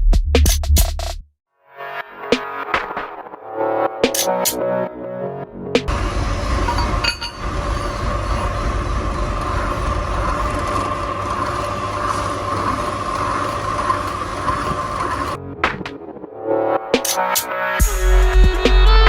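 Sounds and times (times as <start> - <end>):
workshop machine hum: 5.9 - 15.4.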